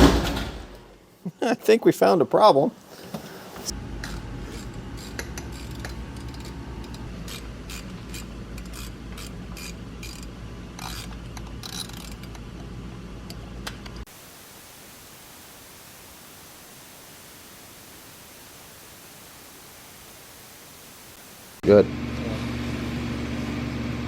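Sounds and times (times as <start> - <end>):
steady hiss: 14.1 - 21.6.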